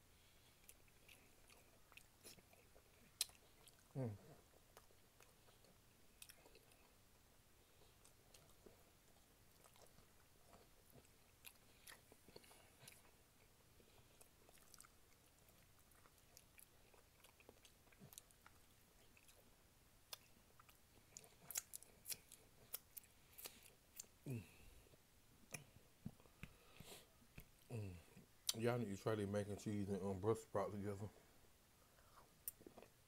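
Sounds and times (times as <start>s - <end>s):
quiet chewing: 0.1s - 28.6s, 31.8s - 33.0s
wet mouth clicks and lip smacks: 21.4s - 24.2s.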